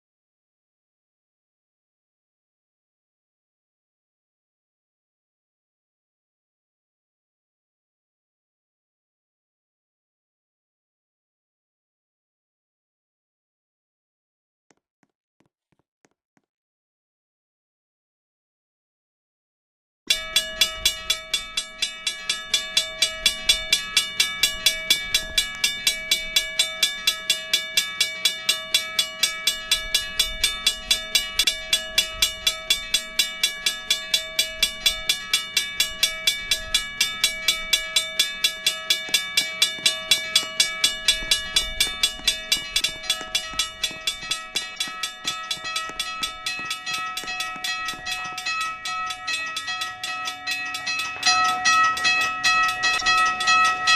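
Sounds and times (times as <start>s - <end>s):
railroad crossing bell ringing: 20.1s - 53.9s.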